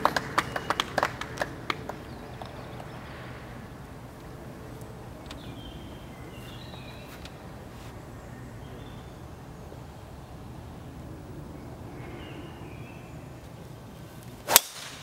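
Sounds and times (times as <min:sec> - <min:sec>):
faint clicks: 0:03.8 - 0:05.5.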